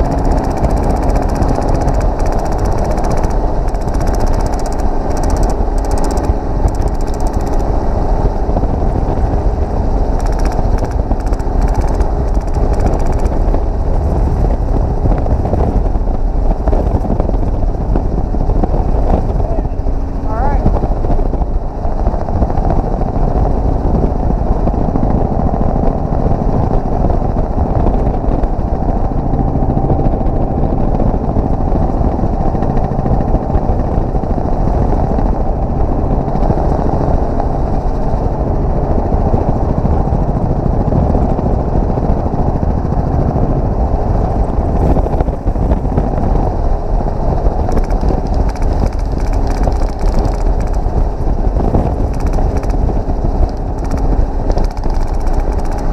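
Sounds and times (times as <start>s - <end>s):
helicopter engine and rotor: 0.0s - 55.9s.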